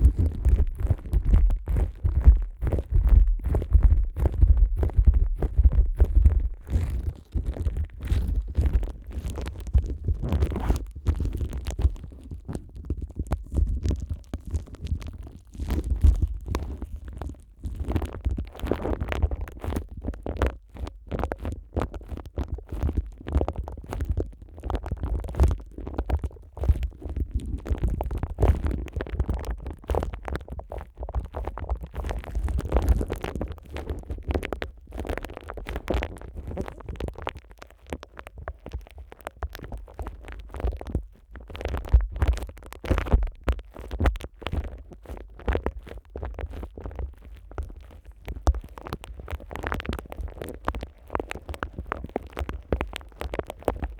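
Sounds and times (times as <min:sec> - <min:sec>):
deep microphone handling rumble: 0:00.0 - 0:20.0, 0:26.6 - 0:37.4
plastic wrap crinkling: 0:29.4 - 0:53.9.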